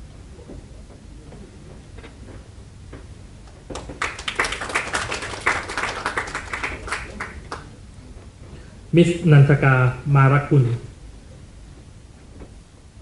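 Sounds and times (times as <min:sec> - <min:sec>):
audience applauding: 0:03.6 - 0:07.8.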